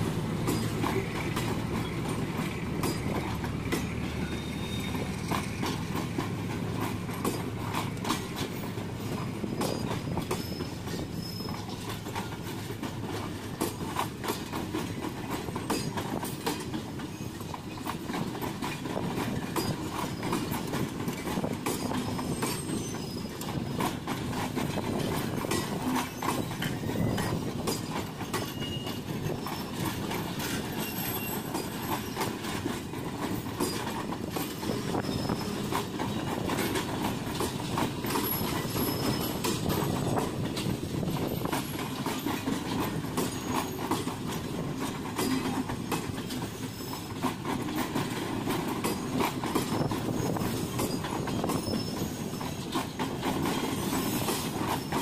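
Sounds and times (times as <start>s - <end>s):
train wheels rumbling on rails: 0.0s - 55.0s
wheels clicking over rail joints: 0.0s - 55.0s.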